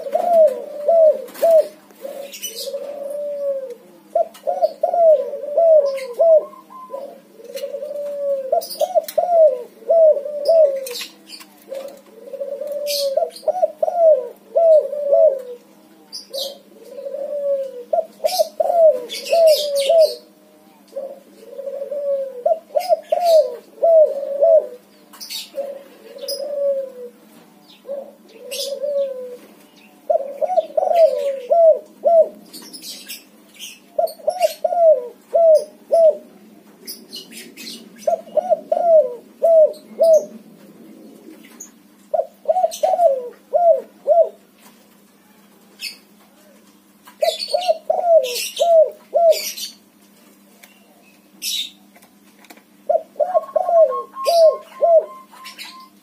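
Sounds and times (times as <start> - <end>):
small birds chirping: 0.0 - 21.8, 22.5 - 26.7, 27.4 - 34.8, 36.8 - 38.8, 46.7 - 49.9, 52.9 - 56.0
dove cooing: 0.0 - 44.4, 47.2 - 49.8, 52.8 - 56.0
faint steady hum: 0.0 - 56.0.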